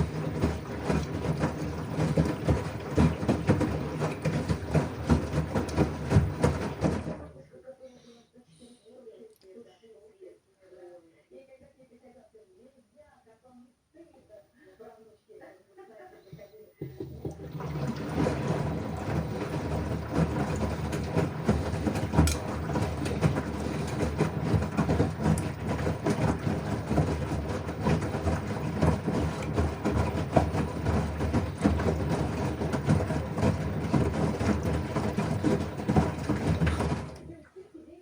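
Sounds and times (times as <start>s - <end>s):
washing machine drum humming: 0.0s - 7.4s, 16.2s - 38.0s
washing machine knocking: 0.0s - 7.4s, 16.3s - 37.5s.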